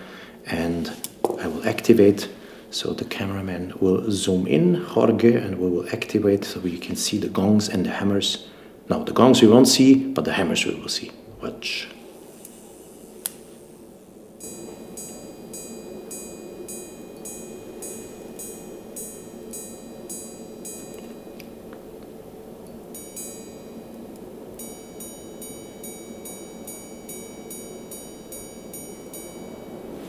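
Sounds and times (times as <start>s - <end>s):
watch hammers striking gongs: 12.2s - 30.0s.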